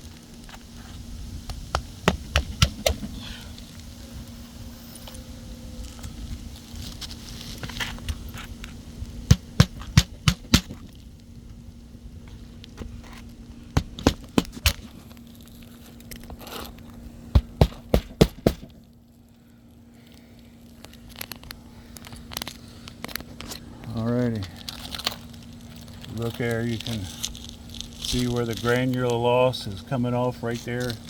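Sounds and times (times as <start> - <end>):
steady low hum: 0.0 - 31.0
hammer striking roof shingles: 9.3 - 10.8, 13.8 - 14.9, 17.3 - 18.8.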